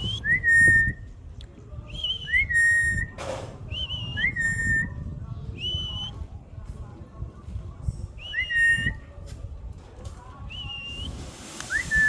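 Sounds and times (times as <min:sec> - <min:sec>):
brief hiss: 0:11.1 - 0:12.0.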